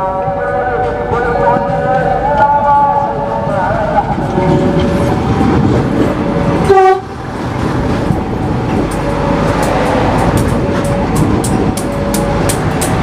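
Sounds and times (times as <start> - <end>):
train rumbling past: 0.0 - 13.0
wheels clicking over rail joints: 4.0 - 13.0
train horn blast: 6.6 - 7.3.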